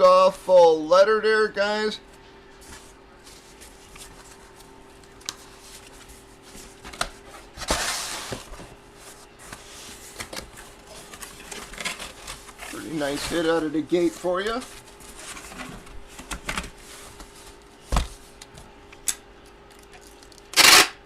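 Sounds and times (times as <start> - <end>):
faint steady hum: 0.0 - 21.0
plastic rustle: 2.6 - 17.8.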